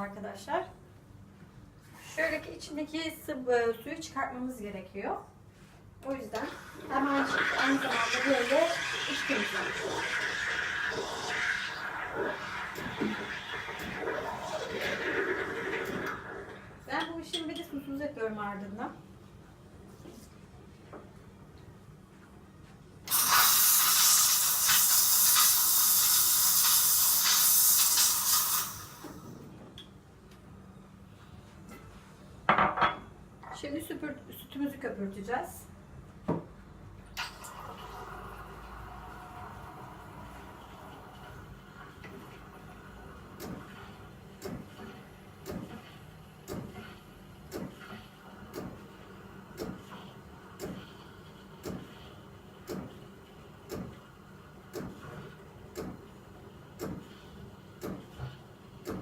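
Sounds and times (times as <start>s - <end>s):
coffee machine frothing milk: 6.4s - 16.8s, 23.1s - 29.4s, 37.2s - 46.1s
steam hissing with spits: 6.6s - 16.4s, 23.1s - 29.4s.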